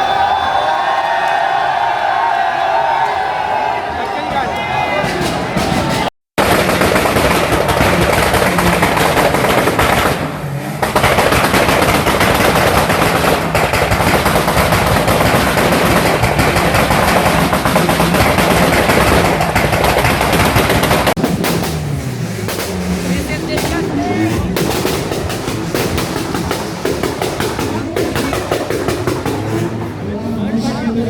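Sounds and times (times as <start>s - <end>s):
exhaust popping and banging: 3.8s - 30.3s
car engine on launch limiter: 7.2s - 31.0s.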